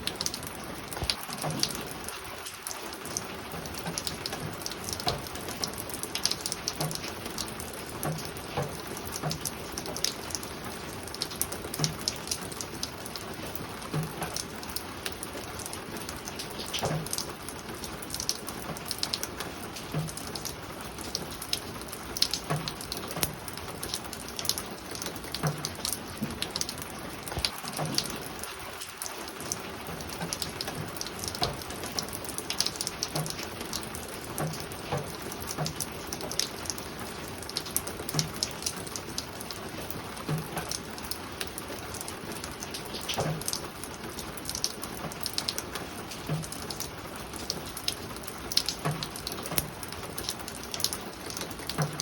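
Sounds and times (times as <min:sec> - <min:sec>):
rain pattering on a roof: 0:00.0 - 0:52.0.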